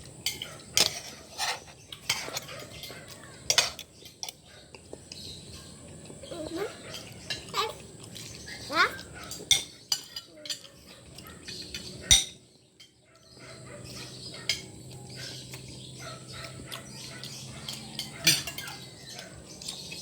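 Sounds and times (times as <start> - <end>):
cutlery clinking on plate: 0.3 - 4.4, 9.3 - 10.8, 11.4 - 13.0, 14.4 - 14.8, 17.2 - 20.0.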